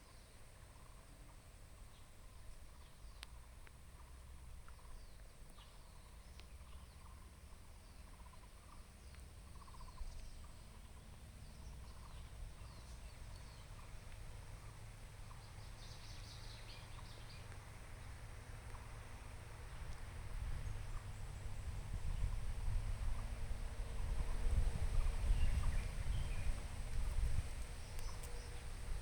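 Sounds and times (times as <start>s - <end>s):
faint bird chirps: 0.0s - 18.9s, 24.2s - 29.0s
low steady rumble: 0.1s - 29.0s
high bird twittering: 24.9s - 28.7s.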